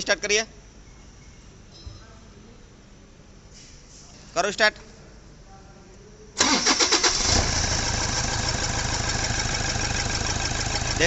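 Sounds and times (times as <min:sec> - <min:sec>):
diesel engine idling: 0:06.4 - 0:11.0
engine starter cranking: 0:06.4 - 0:11.0.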